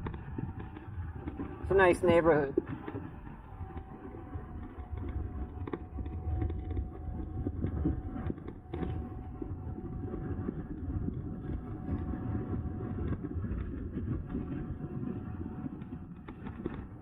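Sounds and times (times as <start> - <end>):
faint steady whine: 0.0 - 17.0
wind buffeting microphone: 0.0 - 17.0.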